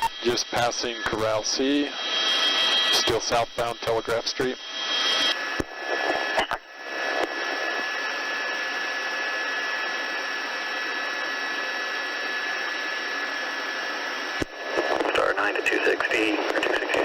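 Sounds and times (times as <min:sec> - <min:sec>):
radio static hiss: 0:00.0 - 0:08.1, 0:14.4 - 0:17.0
faint steady whine: 0:00.0 - 0:17.0.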